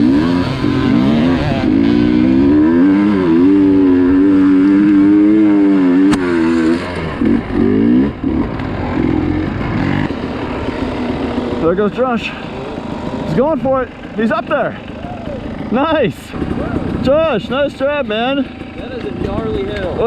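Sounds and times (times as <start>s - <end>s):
dirt bike engine revving: 0.0s - 20.0s
sharp click: 6.1s - 6.3s.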